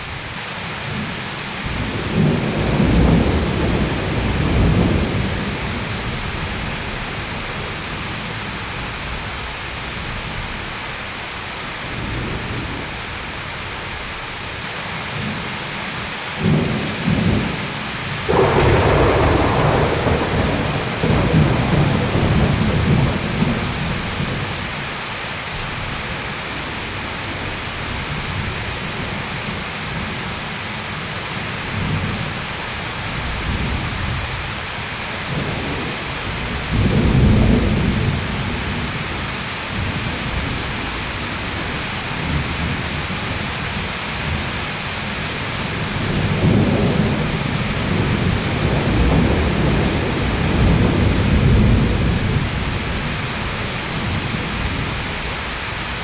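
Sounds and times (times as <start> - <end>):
heavy rain: 0.0 - 56.0
thunder rumbling: 1.6 - 10.6, 16.4 - 24.8, 33.0 - 56.0.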